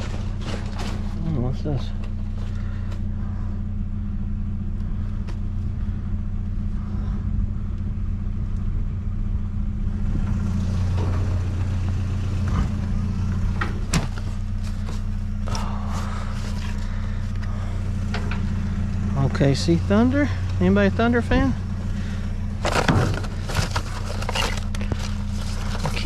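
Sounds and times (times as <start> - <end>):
vehicle engine idling: 0.0 - 26.0.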